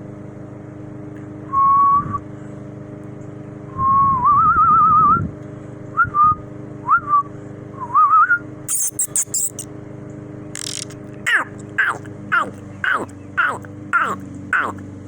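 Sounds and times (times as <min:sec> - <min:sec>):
low engine-like hum: 0:00.0 - 0:15.0
sharp clicks: 0:10.6 - 0:11.7.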